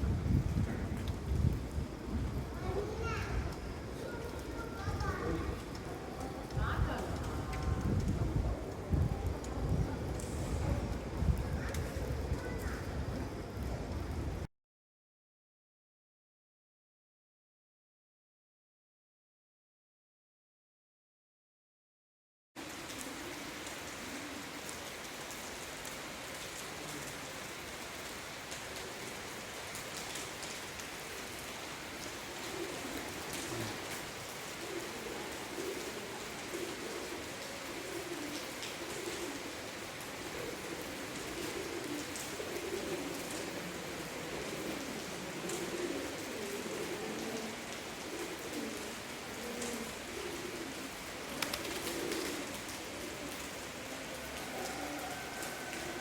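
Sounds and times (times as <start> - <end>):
rain dripping in a cave: 0.0 - 14.5, 22.6 - 56.0
pigeons cooing: 22.7 - 25.4, 30.4 - 56.0.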